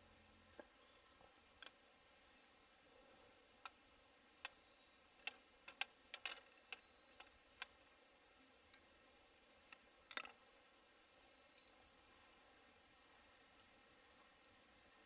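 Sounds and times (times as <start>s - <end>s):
faint sharp clicks: 3.6s - 4.6s.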